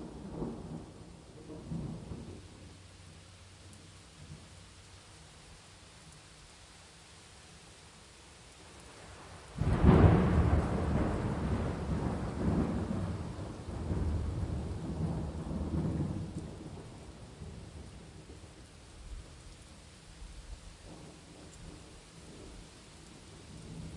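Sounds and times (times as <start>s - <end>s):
rain hissing: 0.0s - 23.9s
thunder rumbling: 9.6s - 18.5s.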